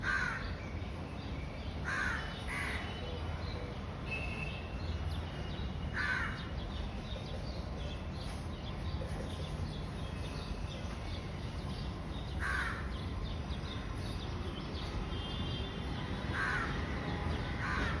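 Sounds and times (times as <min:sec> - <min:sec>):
bird harsh calls: 0:12.3 - 0:13.3.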